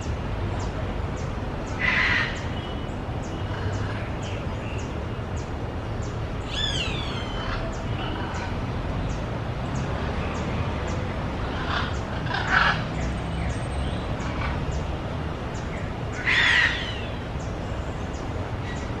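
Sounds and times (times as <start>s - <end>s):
parrot squawking: 11.5s - 12.8s.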